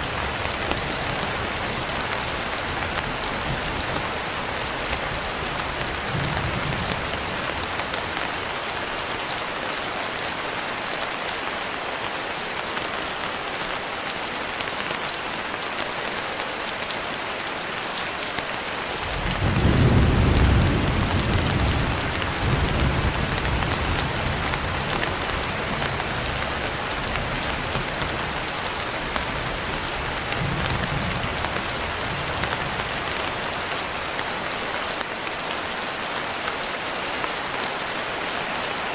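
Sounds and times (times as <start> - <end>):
thunder rumbling: 19.1 - 26.4.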